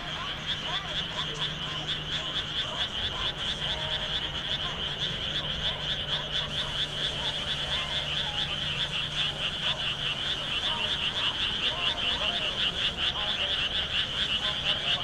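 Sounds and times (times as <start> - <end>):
frogs croaking: 0.0 - 15.0.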